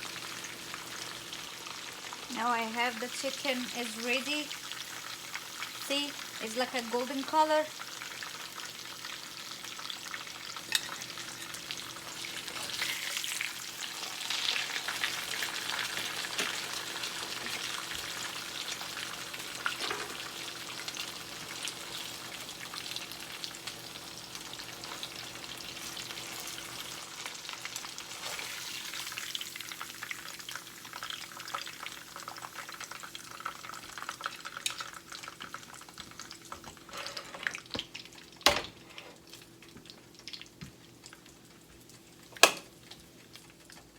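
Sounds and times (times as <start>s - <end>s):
chicken frying in hot oil: 0.0s - 43.9s.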